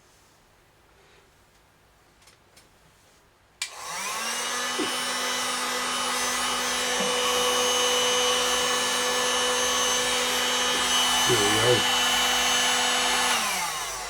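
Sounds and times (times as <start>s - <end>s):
heat gun switch click: 3.6s - 3.8s
heat gun fan whine: 3.6s - 14.0s.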